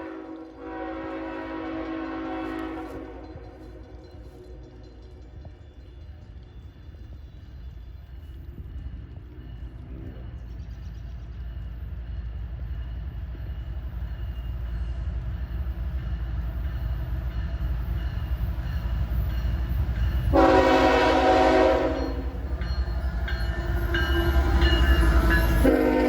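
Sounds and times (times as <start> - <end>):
train horn blast: 0.0 - 4.2, 20.3 - 22.6, 25.5 - 26.0
locomotive rumble: 0.0 - 26.0.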